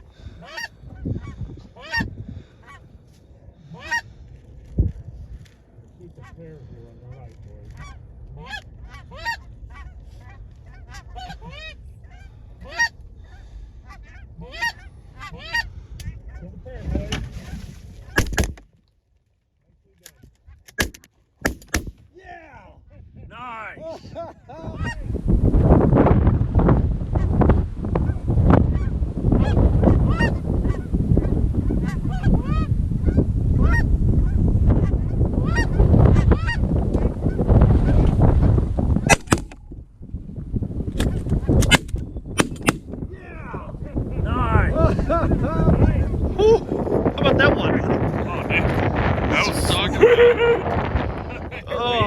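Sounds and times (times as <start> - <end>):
wind rumble on microphone: 0.0 - 18.6, 21.6 - 52.0
geese honking: 0.2 - 2.9, 3.6 - 4.2, 7.7 - 16.4, 28.0 - 38.0.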